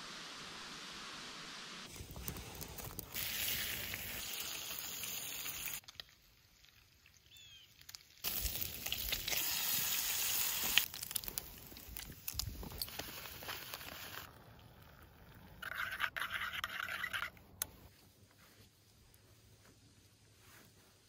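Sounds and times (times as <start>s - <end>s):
bacon sizzling in a frying pan: 3.0s - 14.3s.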